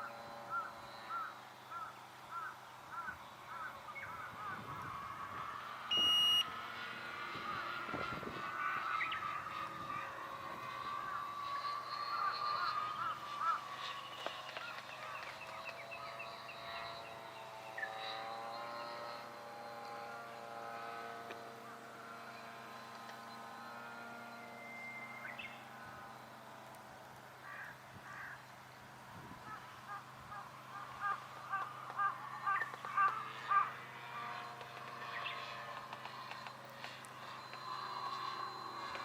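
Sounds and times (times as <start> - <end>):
model aircraft motor drone: 0.0 - 39.0
crow cawing: 0.5 - 4.7, 12.0 - 13.8, 27.4 - 28.4, 29.5 - 33.8.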